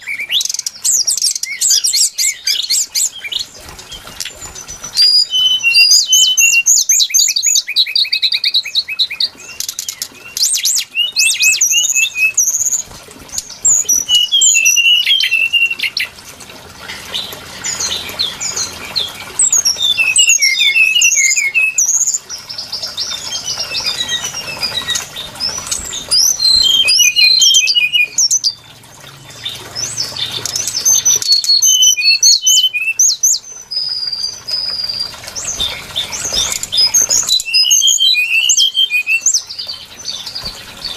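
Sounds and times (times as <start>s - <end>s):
bird song whistles and trills: 0.0s - 40.9s.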